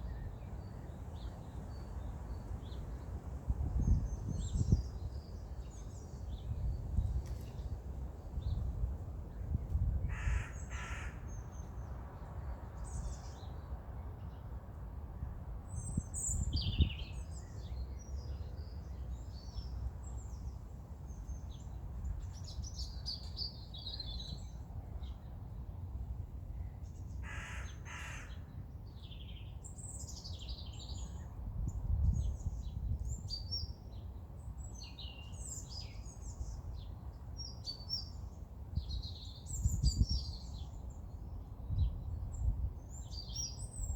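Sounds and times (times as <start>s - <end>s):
songbirds chirping: 0.0s - 14.9s, 15.6s - 43.9s
crow cawing: 10.1s - 11.2s, 27.2s - 28.4s.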